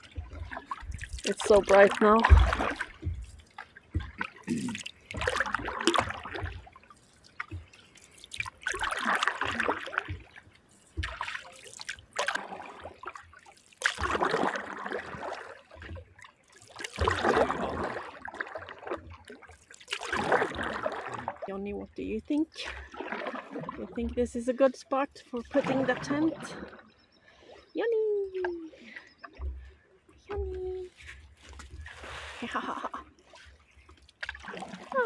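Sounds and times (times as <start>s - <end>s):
paddle swishing through water: 0.0s - 35.0s
water dripping off paddle: 0.0s - 35.0s.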